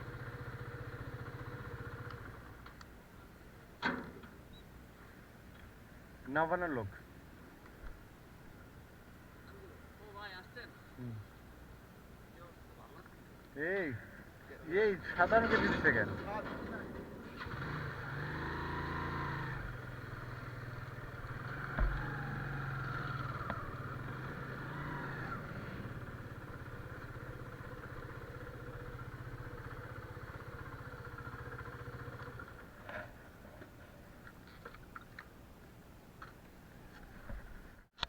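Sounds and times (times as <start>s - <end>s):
motorcycle engine running: 0.0s - 2.5s, 15.0s - 32.8s
light ticks: 2.0s - 2.9s.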